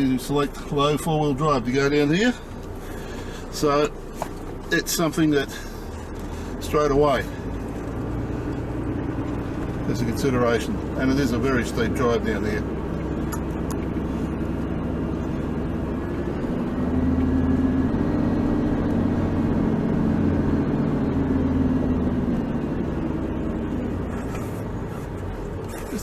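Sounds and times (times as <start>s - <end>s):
vehicle engine driving on sand: 0.0s - 26.0s.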